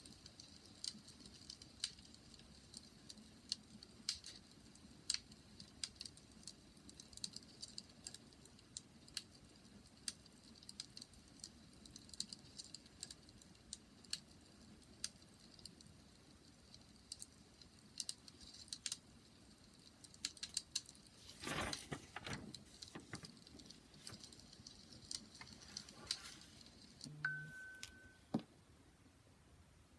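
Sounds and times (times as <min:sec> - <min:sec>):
wood fire crackling and popping: 0:00.0 - 0:27.0
faint low hiss: 0:00.0 - 0:29.9.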